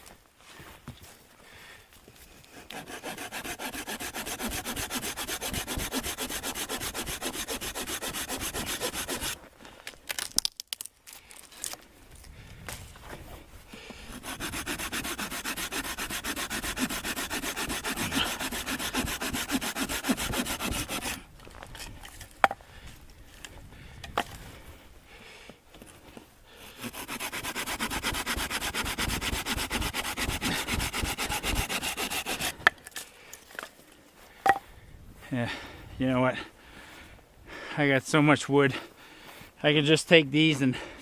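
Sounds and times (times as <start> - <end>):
hand saw cutting wood: 2.5 - 9.4, 14.0 - 21.2, 26.6 - 32.8.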